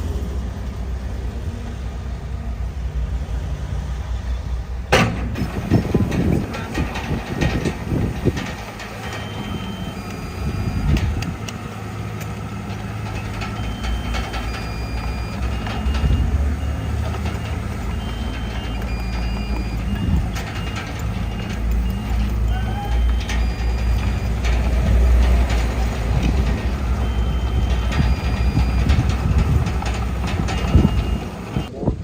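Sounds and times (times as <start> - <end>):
heavy diesel machinery rumbling: 0.0 - 32.0
metal clanks and knocks: 4.9 - 31.7
short high-pitched beeps: 8.2 - 11.3, 13.2 - 25.1, 26.1 - 31.7.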